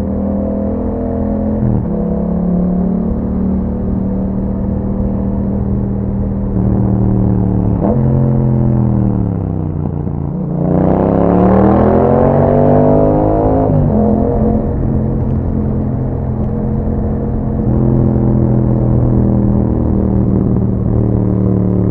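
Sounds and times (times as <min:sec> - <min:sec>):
motorcycle engine running: 0:13.0 - 0:21.9.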